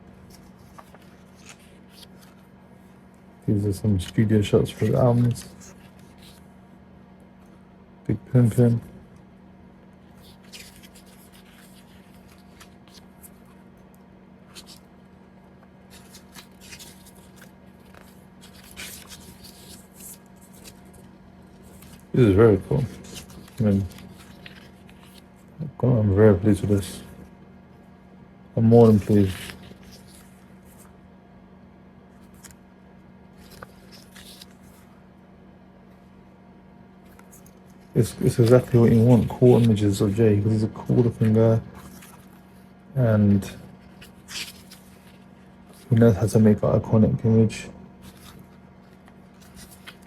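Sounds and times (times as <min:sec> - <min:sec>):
steady low hum: 0:00.0 - 0:50.0
small ticks of pages: 0:00.1 - 0:06.5, 0:10.0 - 0:25.5, 0:28.7 - 0:31.0, 0:32.2 - 0:32.7, 0:33.3 - 0:34.9, 0:37.0 - 0:40.2, 0:40.8 - 0:42.5, 0:43.8 - 0:46.5, 0:48.0 - 0:50.0
paper pages rustling: 0:00.1 - 0:06.6, 0:10.0 - 0:25.7, 0:28.6 - 0:31.0, 0:32.1 - 0:35.1, 0:37.0 - 0:42.8, 0:43.4 - 0:46.7, 0:48.0 - 0:50.0.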